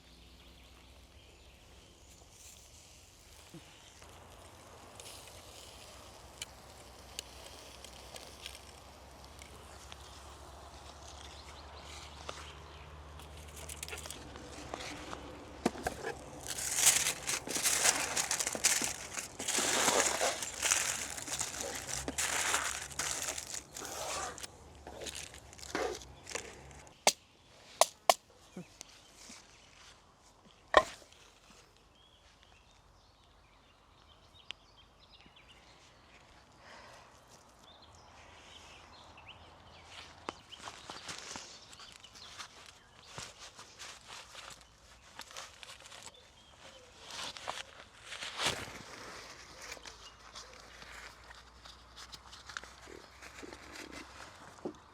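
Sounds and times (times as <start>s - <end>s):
rustling and crinkling: 2.1s - 27.1s, 39.9s - 54.9s.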